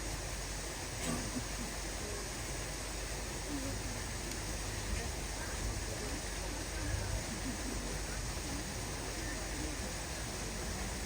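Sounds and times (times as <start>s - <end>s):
steady background hiss: 0.0s - 11.0s
faint click: 4.2s - 4.4s.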